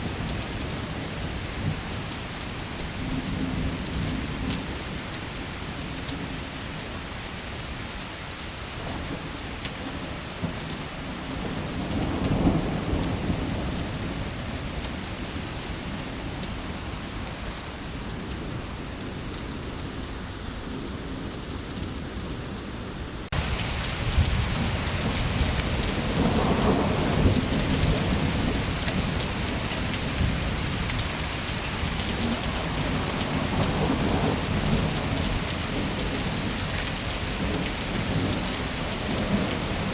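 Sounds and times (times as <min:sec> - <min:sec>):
steady rain: 0:00.0 - 0:39.9
low rolls of thunder: 0:23.3 - 0:36.4.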